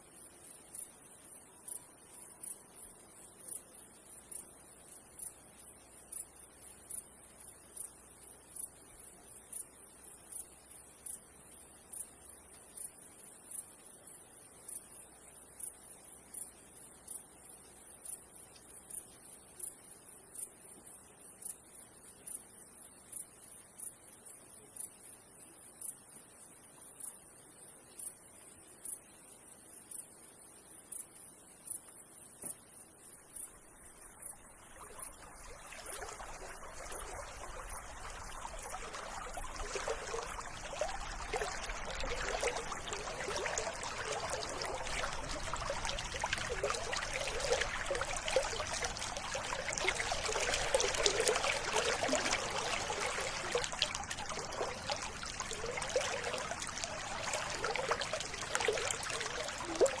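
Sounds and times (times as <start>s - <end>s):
river water babbling: 33.4s - 60.0s.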